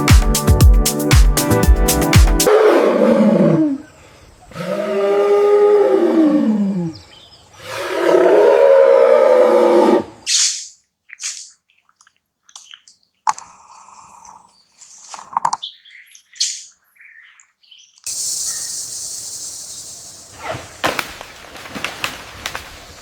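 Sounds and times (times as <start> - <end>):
birds chirping and calling: 14.2 - 20.4
high-pitched jungle hiss: 18.1 - 23.0.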